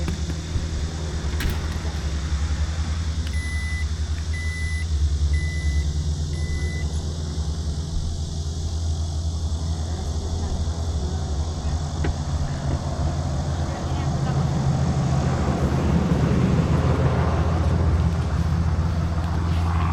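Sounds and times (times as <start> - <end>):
car engine rumble: 0.0 - 19.9
short electronic beeps: 3.4 - 6.9.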